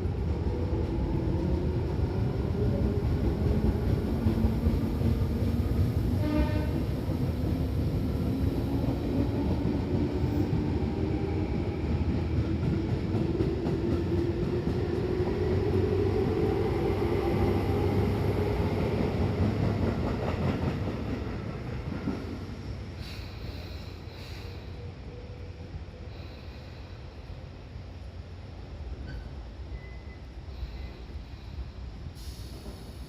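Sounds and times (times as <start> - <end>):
train running rumble: 0.0 - 25.1
short tone: 29.7 - 30.3.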